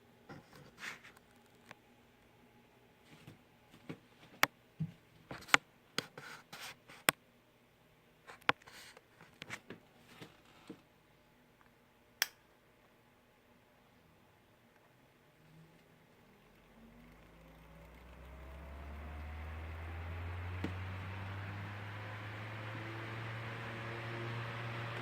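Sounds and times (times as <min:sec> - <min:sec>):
faint motor hum: 0:13.5 - 0:25.0.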